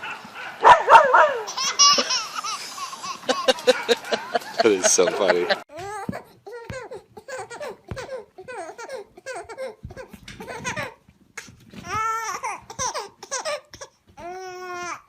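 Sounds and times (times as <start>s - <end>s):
person laughing in a high voice: 1.5s - 5.7s.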